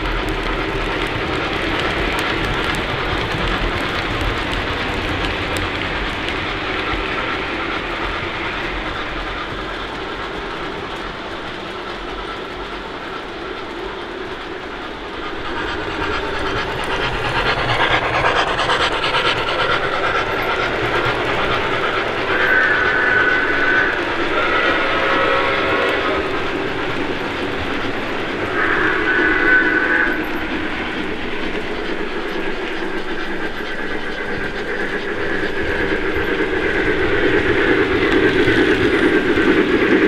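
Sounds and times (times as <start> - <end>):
model train wheels clattering: 12.6 - 40.0
locomotive sound effects: 13.7 - 40.0.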